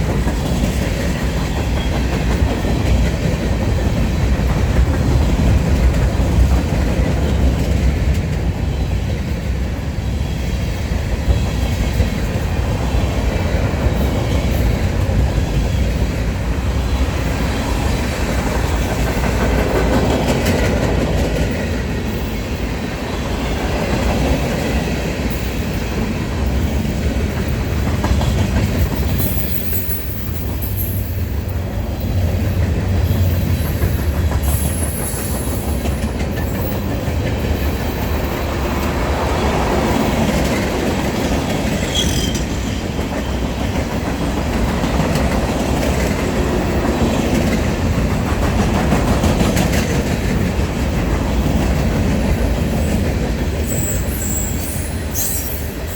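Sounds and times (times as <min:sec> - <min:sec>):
freight train rolling past: 0:00.0 - 0:55.9
wheels clacking over rail joints: 0:00.0 - 0:55.9
high wheel squeals: 0:41.8 - 0:42.6, 0:53.6 - 0:55.9.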